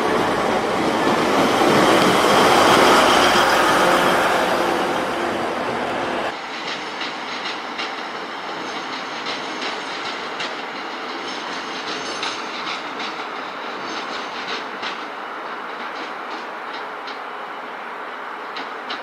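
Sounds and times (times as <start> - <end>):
train running noise: 0.0 - 19.0
train wheels clacking over rail joints: 6.3 - 17.3, 18.4 - 19.0.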